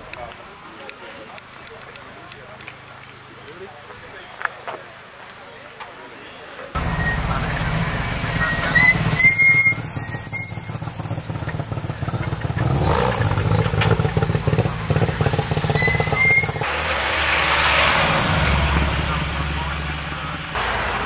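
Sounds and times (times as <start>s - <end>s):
short high squeals: 6.8s - 11.4s, 15.6s - 16.6s
car engine at low revs: 6.8s - 16.6s, 17.5s - 21.0s.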